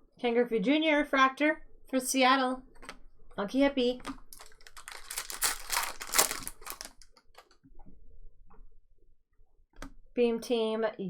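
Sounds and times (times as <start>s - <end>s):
cards rustling and clicking: 4.1s - 7.5s.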